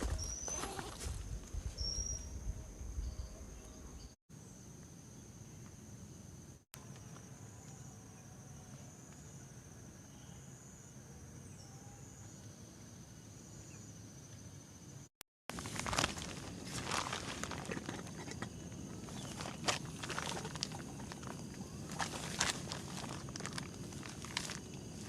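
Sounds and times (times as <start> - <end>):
insects trilling: 4.4 - 25.0
rustling and crackling: 15.5 - 25.0.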